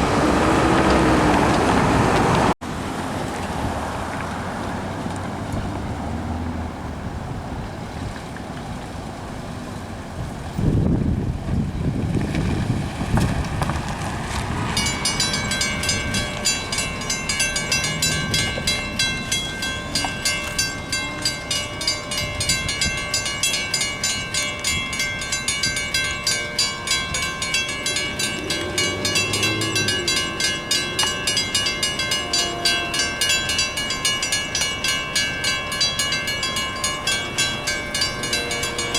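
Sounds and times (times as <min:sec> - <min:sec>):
road traffic passing: 0:00.0 - 0:38.9
railroad crossing bell clanging: 0:14.6 - 0:38.9.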